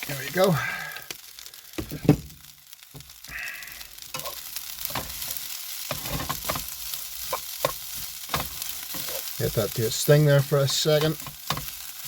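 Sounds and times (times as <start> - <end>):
rice sizzling in a pan: 0.0 - 12.0
utensil scraping and knocking pan: 5.9 - 9.4.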